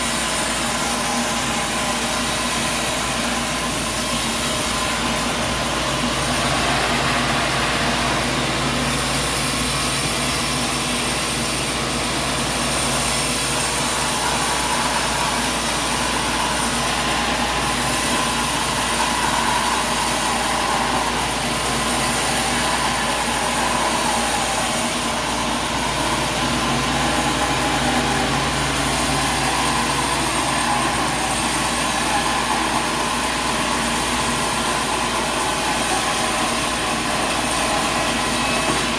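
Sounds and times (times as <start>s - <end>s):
sawmill machinery drone: 0.0s - 38.9s.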